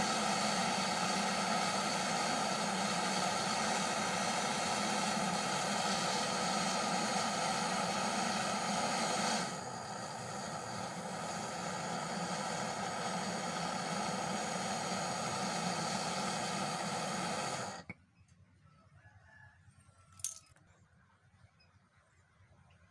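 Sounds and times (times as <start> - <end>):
gas torch hissing: 0.0 - 17.9.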